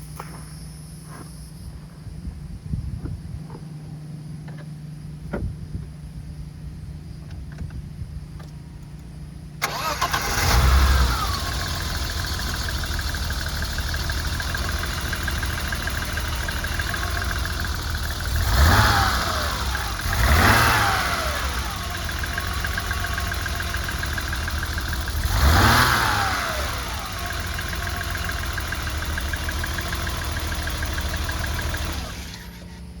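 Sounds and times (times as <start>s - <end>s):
car engine starting and idling: 4.2s - 33.0s
engine revving: 9.6s - 32.8s.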